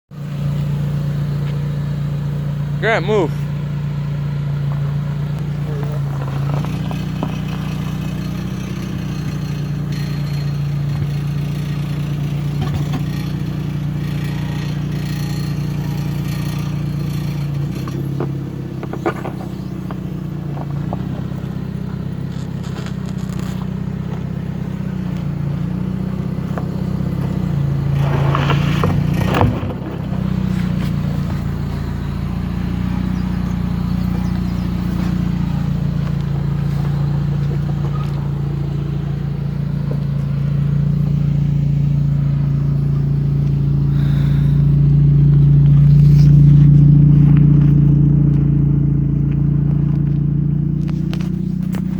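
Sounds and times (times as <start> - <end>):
car engine at low revs: 0.0 - 51.9
car underside scraping and crunching: 0.2 - 2.8, 3.4 - 51.9
scrapes and clatters: 22.2 - 24.2, 26.5 - 31.9.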